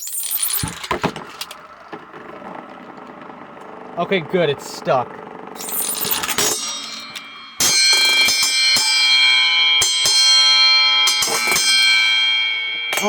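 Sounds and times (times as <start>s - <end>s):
spinning tops knocking: 0.0s - 1.7s
spinning tops ringing: 0.0s - 1.7s, 5.6s - 13.0s.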